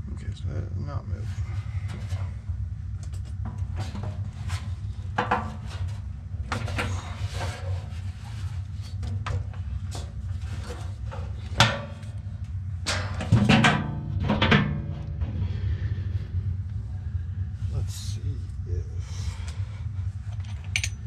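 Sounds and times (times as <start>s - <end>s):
steady low hum: 0.0s - 21.0s
tools and metal parts clicking: 20.3s - 21.0s.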